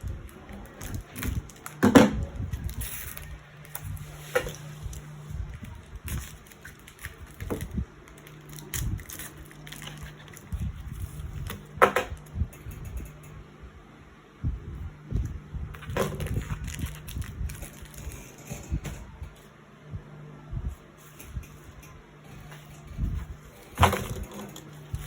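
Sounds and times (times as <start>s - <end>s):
packaging rustling and crinkling: 0.0s - 11.7s, 15.7s - 18.9s
low hum: 0.0s - 25.0s.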